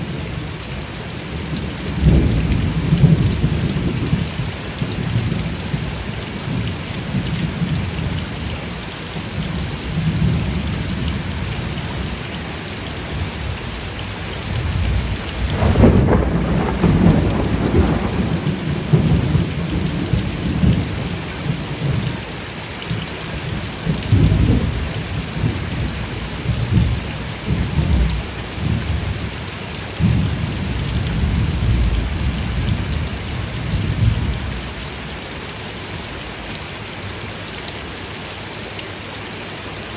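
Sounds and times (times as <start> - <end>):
rain pouring: 0.0 - 39.9
thunder rumbling: 14.5 - 22.1, 30.0 - 34.7.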